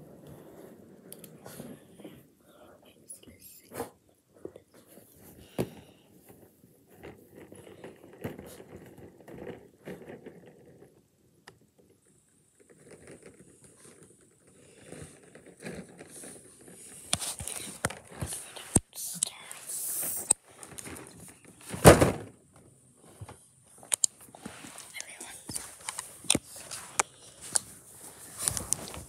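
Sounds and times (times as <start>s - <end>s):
quiet rustling: 11.6s - 21.8s, 22.6s - 29.0s
small objects clicking and tapping: 23.8s - 24.2s.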